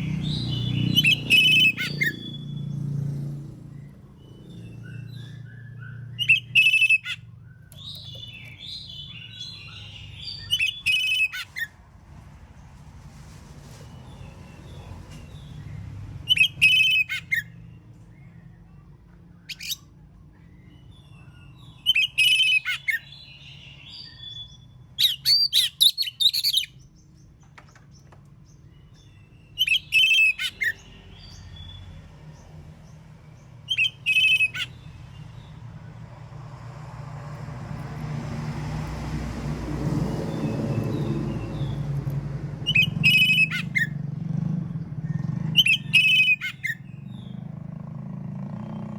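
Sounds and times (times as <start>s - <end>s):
bird singing whistled phrases: 0.4s - 2.7s, 4.2s - 11.7s, 16.3s - 17.5s, 21.0s - 26.8s, 29.0s - 31.5s, 33.7s - 34.8s, 42.6s - 44.0s, 45.6s - 47.3s.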